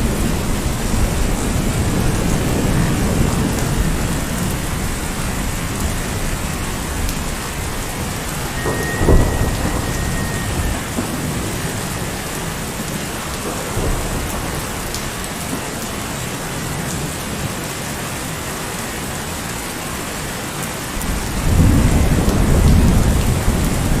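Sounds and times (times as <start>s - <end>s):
low rumble of thunder: 0.0s - 17.6s, 21.0s - 24.0s
heavy rain on hard surfaces: 0.0s - 24.0s.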